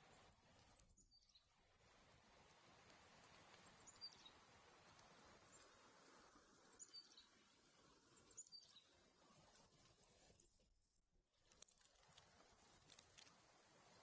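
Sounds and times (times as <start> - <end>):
faint steady hiss: 0.0 - 14.0
small bird chirps: 0.9 - 1.5, 3.6 - 4.4, 6.7 - 7.4, 8.2 - 9.0.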